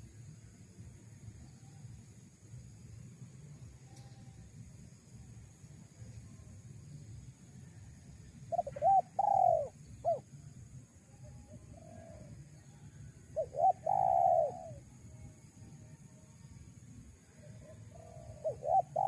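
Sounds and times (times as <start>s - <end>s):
dove cooing: 8.5s - 10.3s, 13.4s - 14.8s, 17.6s - 19.0s.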